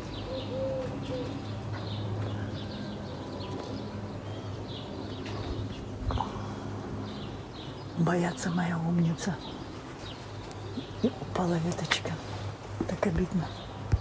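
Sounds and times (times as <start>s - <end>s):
dove cooing: 0.0s - 1.9s
small birds chirping: 0.0s - 14.0s.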